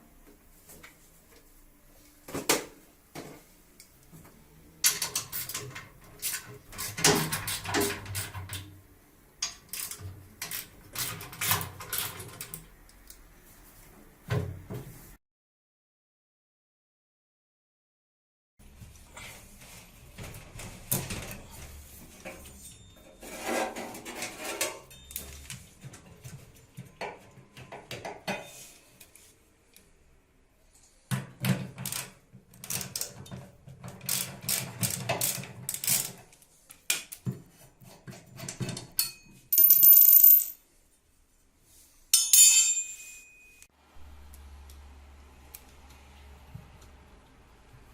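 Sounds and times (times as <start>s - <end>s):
hand tools and metal parts clinking: 38.3s - 40.6s, 42.1s - 43.7s.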